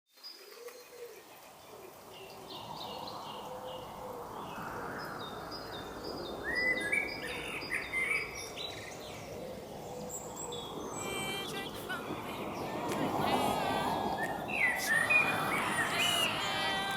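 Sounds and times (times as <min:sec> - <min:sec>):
small birds chirping: 0:00.2 - 0:16.9
steady background hiss: 0:00.2 - 0:16.9.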